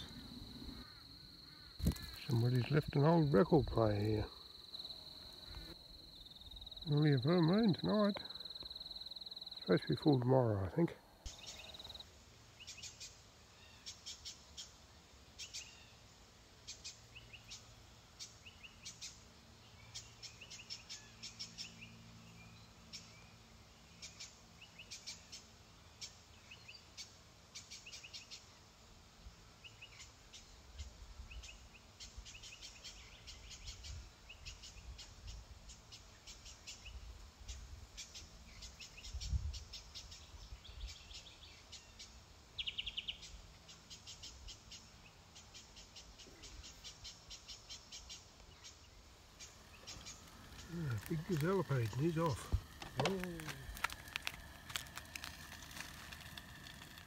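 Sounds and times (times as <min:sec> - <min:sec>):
small birds chirping: 0:00.0 - 0:28.6, 0:29.6 - 0:57.0.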